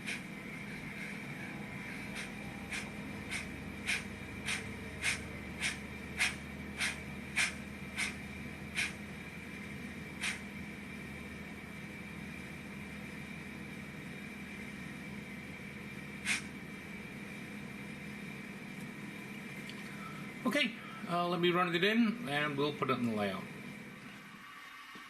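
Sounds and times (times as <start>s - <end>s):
model train steam chuffs: 0.0s - 11.7s, 13.9s - 16.9s
steady hum: 0.0s - 25.0s.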